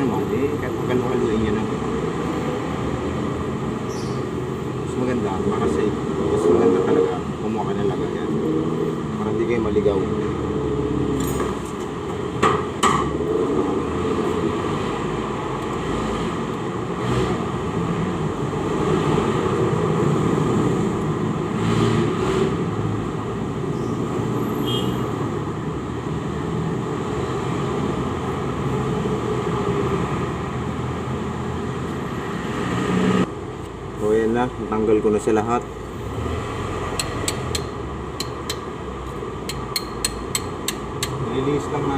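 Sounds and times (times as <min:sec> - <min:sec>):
steady background noise: 0:25.2 - 0:41.9
metallic clicks of hand tools: 0:37.0 - 0:38.7, 0:39.5 - 0:41.2.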